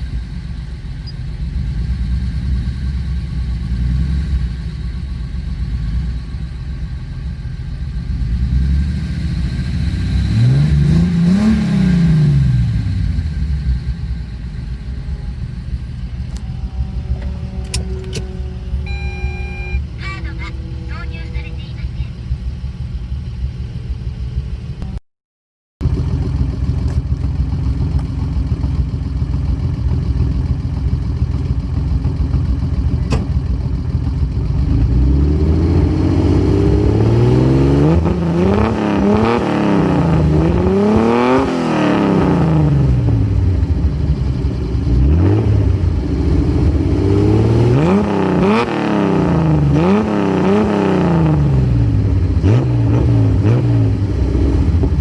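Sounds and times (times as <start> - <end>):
car engine idling and revving: 0.0 - 25.0, 25.8 - 55.0.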